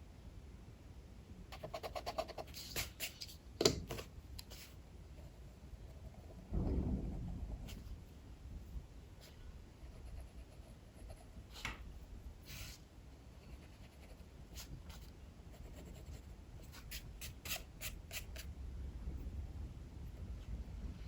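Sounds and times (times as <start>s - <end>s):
strong wind rumble: 6.0s - 9.7s, 18.5s - 21.0s.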